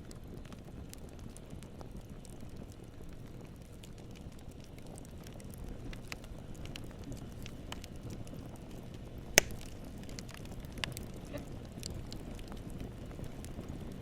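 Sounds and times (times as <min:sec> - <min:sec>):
campfire crackling: 0:00.0 - 0:14.0
loud sharp fire pop: 0:09.4 - 0:09.8.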